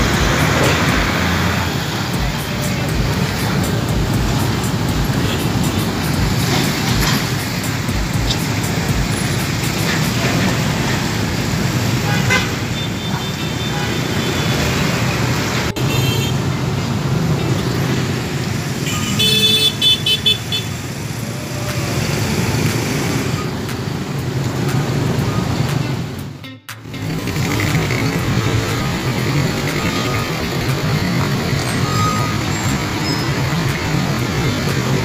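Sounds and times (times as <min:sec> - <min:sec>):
road traffic rumble: 0:00.0 - 0:35.0
vehicle horn honking: 0:12.0 - 0:14.7, 0:15.7 - 0:16.4.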